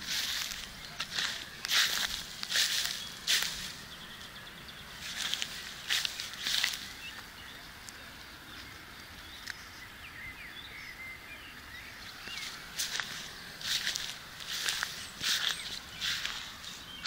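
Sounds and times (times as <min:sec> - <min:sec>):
footsteps rustling through grass: 0:00.0 - 0:07.4, 0:12.1 - 0:17.0
outdoor background hiss: 0:00.0 - 0:17.0
small birds chirping: 0:00.0 - 0:17.0.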